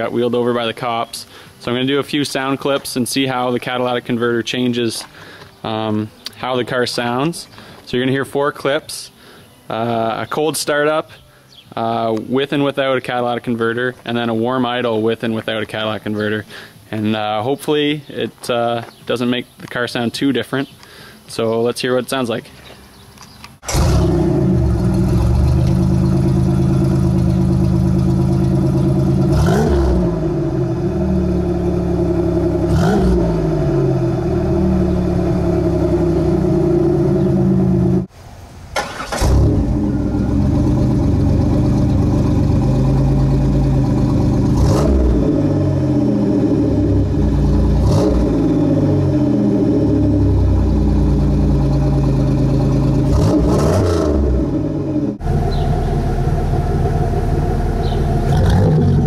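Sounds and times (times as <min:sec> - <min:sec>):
car engine starting: 0:22.9 - 0:38.1, 0:38.7 - 0:59.0
car engine idling and revving: 0:23.6 - 0:38.1, 0:39.2 - 0:59.0.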